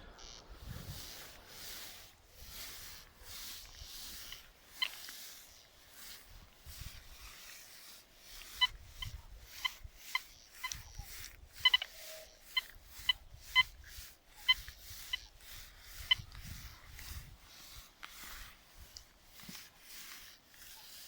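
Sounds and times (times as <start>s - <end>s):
metal detector beeps: 0.0s - 0.5s, 2.7s - 6.3s, 8.3s - 16.7s.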